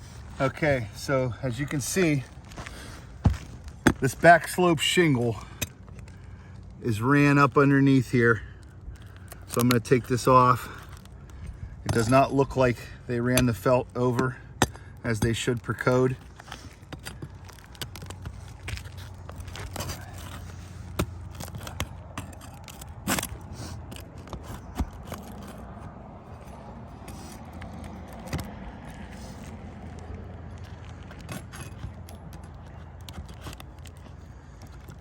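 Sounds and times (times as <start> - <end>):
shingles being scraped: 9.2 - 35.0.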